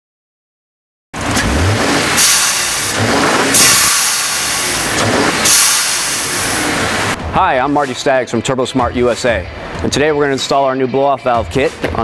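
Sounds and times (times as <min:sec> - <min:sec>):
turbocharged engine revving: 0:01.2 - 0:07.2
loud hissing bursts: 0:01.8 - 0:07.2.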